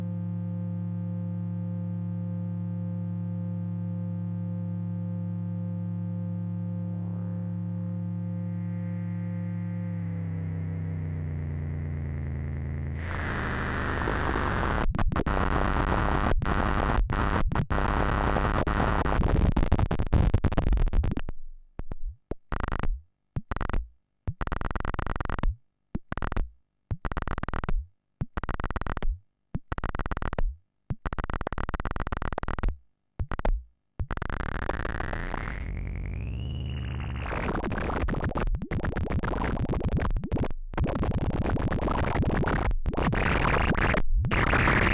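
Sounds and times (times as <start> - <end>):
harsh noisy synthesizer drone: 10.1 - 17.4, 34.2 - 44.9
rising synthesizer tone: 34.8 - 40.4.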